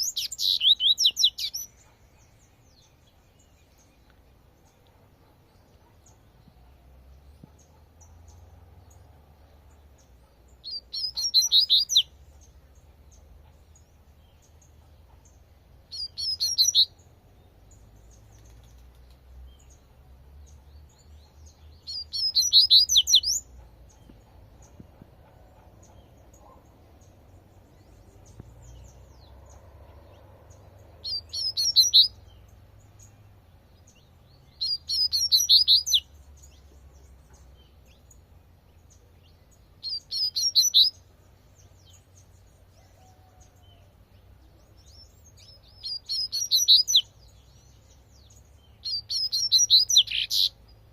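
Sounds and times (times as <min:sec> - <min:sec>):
bird singing rapid high notes: 0:00.0 - 0:01.8, 0:10.7 - 0:12.2, 0:15.9 - 0:17.0, 0:21.9 - 0:23.5, 0:31.0 - 0:32.4, 0:34.6 - 0:36.0, 0:39.8 - 0:41.0, 0:45.5 - 0:47.1, 0:48.8 - 0:50.5.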